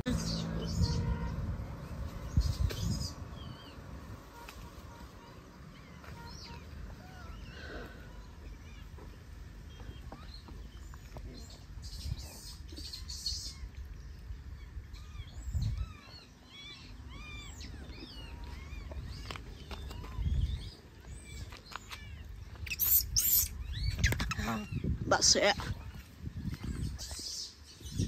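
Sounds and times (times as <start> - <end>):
birds chirping: 0.0 - 28.0
low rumbles on microphone: 0.1 - 4.3, 8.4 - 16.2, 23.5 - 27.2.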